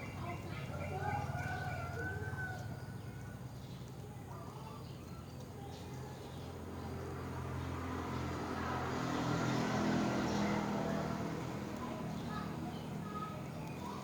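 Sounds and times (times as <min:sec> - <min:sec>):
vehicle engine passing by: 0:06.5 - 0:14.0.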